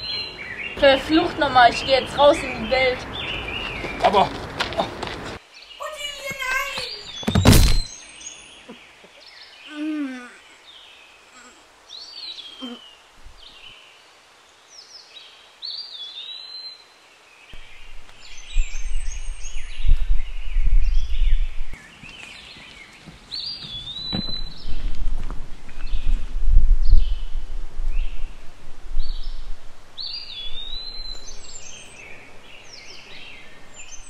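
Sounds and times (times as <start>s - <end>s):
birds singing: 0.0s - 25.0s, 29.0s - 34.0s
loud sharp bang: 7.2s - 7.9s.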